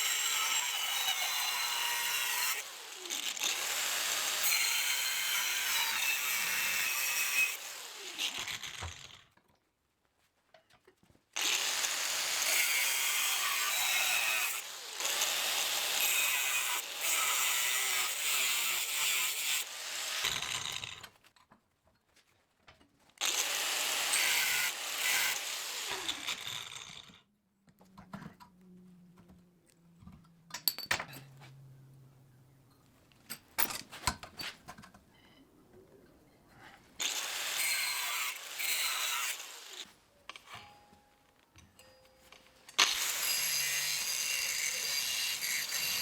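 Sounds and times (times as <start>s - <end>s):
power tool working steel: 0.0s - 9.2s, 11.4s - 21.1s, 23.2s - 27.2s, 37.0s - 39.9s, 42.8s - 46.0s.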